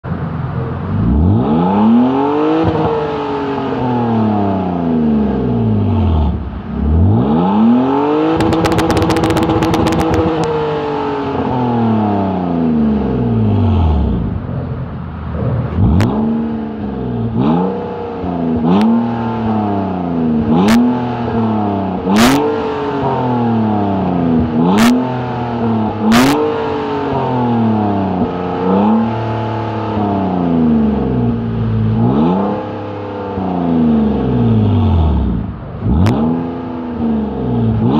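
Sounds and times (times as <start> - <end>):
car engine revving: 0.1 - 37.9
exhaust cracks: 8.3 - 10.6.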